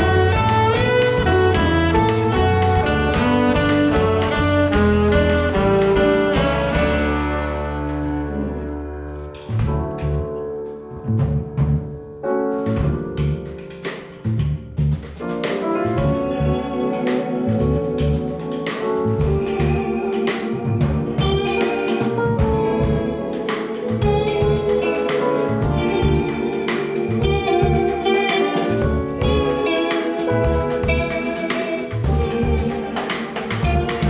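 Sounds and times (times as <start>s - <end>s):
bass and kick drum rhythm: 0.0s - 10.4s, 11.1s - 12.0s, 12.6s - 16.7s, 19.1s - 20.0s, 20.6s - 23.2s, 24.0s - 28.2s, 28.8s - 29.7s, 30.3s - 34.0s
jazz band playing: 0.0s - 34.0s.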